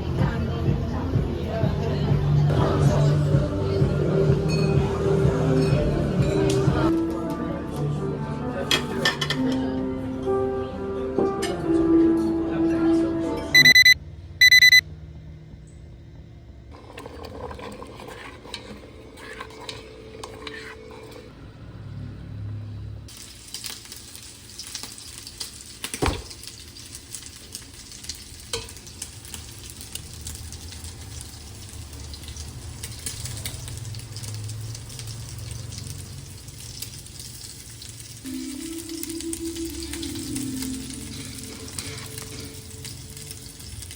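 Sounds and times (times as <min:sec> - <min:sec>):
utensil clinks and scrapes: 0:16.7 - 0:21.3
food sizzling in pan: 0:23.1 - 0:43.9.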